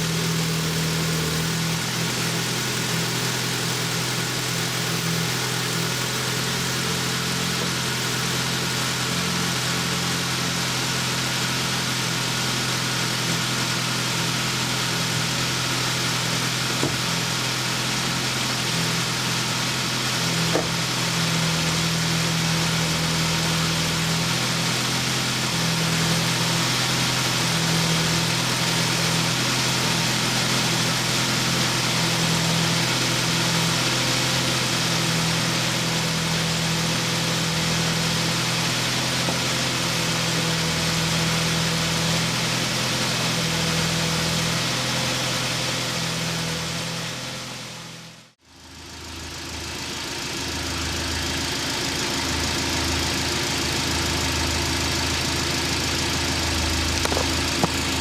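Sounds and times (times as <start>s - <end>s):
petrol engine idling: 0.0s - 10.4s, 48.6s - 58.0s.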